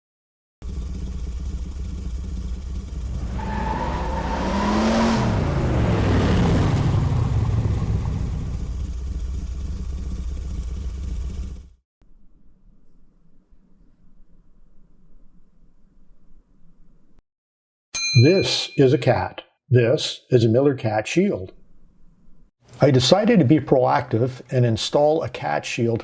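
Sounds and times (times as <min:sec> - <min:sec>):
vehicle engine running: 0:00.6 - 0:11.8
vehicle passing by: 0:03.0 - 0:08.9.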